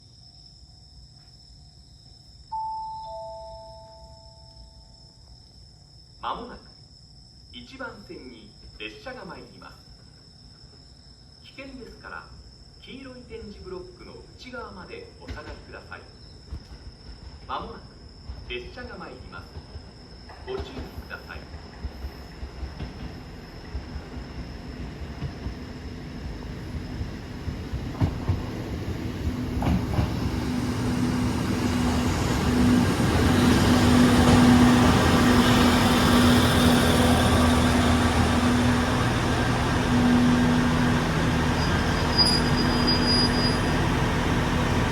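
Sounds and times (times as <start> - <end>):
train wheels on rails: 15.2 - 44.9
diesel railcar engine: 19.3 - 44.9.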